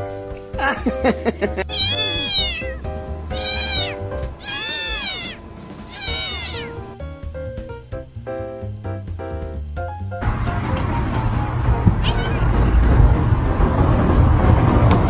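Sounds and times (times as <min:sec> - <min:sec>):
cat meowing: 0:01.6 - 0:06.9, 0:12.0 - 0:12.7.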